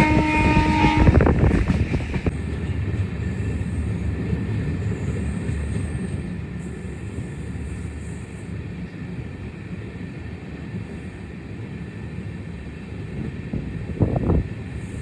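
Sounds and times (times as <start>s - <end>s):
moving train rumble: 0.0s - 15.0s.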